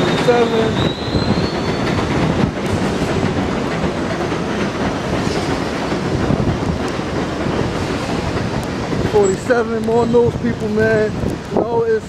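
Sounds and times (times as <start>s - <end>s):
subway train wheels clattering: 0.0s - 12.0s.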